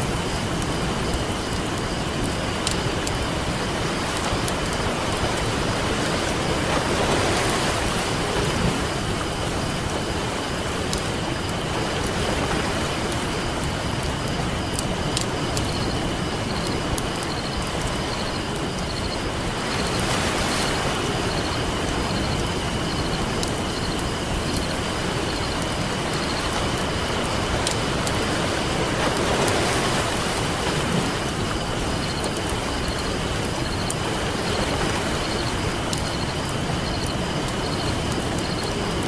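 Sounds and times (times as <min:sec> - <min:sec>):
ocean waves: 0:00.0 - 0:39.0
campfire crackling and popping: 0:00.1 - 0:05.2, 0:22.8 - 0:28.2.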